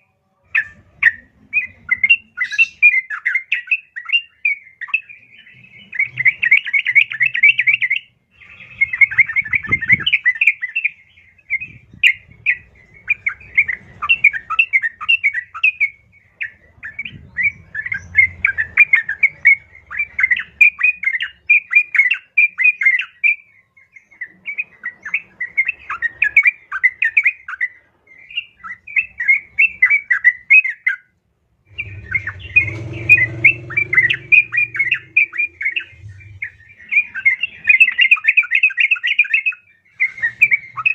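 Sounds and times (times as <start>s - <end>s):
bulbul chattering chirps: 31.7s - 38.0s.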